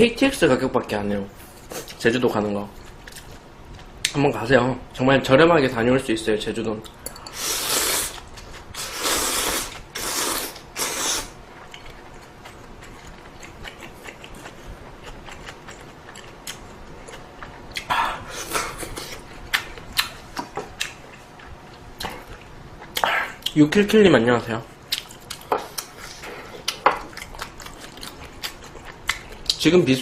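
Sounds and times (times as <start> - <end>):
slurping noodles: 7.3 - 8.2, 8.8 - 11.4
chewing with small clicks: 11.6 - 17.9, 24.9 - 25.9, 26.6 - 29.6.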